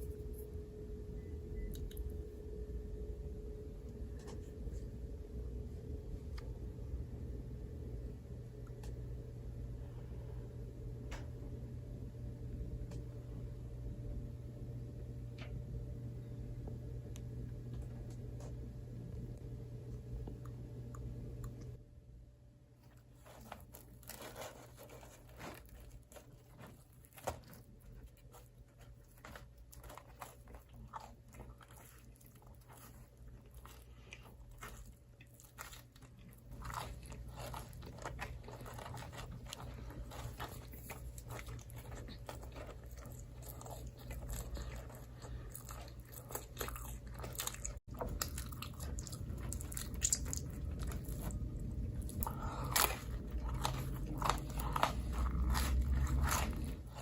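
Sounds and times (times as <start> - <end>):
low hum: 0.0 - 57.0
chewing crunchy pizza: 22.8 - 57.0.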